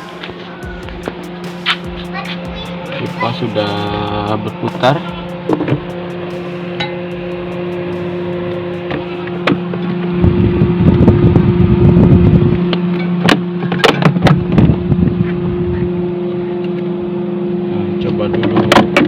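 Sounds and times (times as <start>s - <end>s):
low rumbling noise: 0.0s - 13.6s, 14.2s - 18.0s
refrigerator compressor humming: 0.0s - 19.0s.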